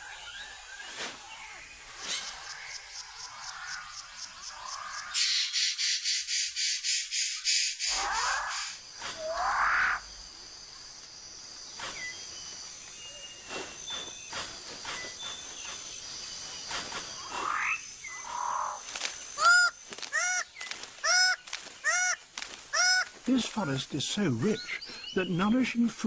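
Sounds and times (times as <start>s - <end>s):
loud animal calls rising and falling: 7.9s - 10.1s.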